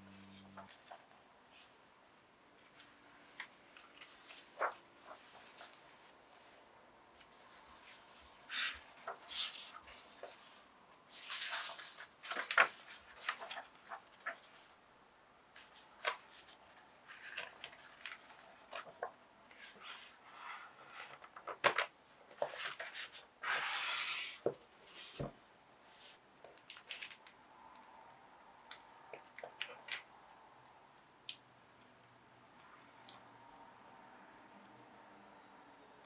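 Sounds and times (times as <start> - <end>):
soft rustling: 2.5 - 14.8.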